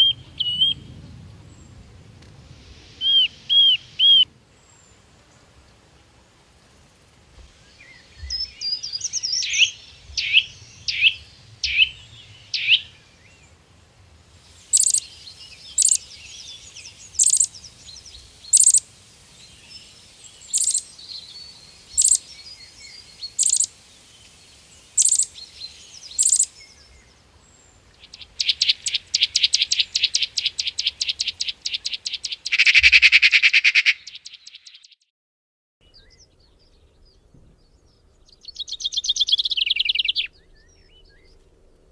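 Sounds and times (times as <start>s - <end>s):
falling whistled bird notes: 3.0s - 4.3s, 7.6s - 13.0s
sharp high bird call: 3.0s - 4.3s, 32.2s - 34.4s.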